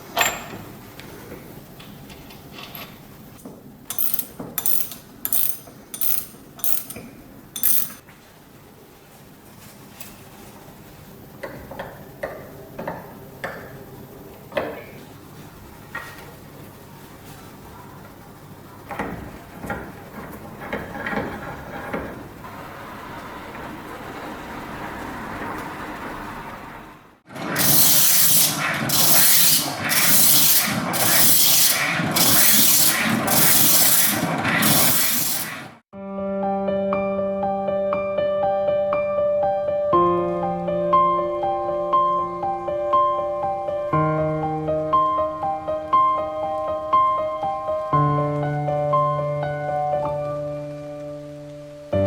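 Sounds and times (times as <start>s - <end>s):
hand-crank grinder gears clicking: 3.9s - 7.0s, 7.6s - 8.0s, 27.3s - 35.7s
metal parts knocking and scraping: 3.9s - 8.0s, 27.4s - 35.5s
aerosol spray can hissing: 27.6s - 35.8s.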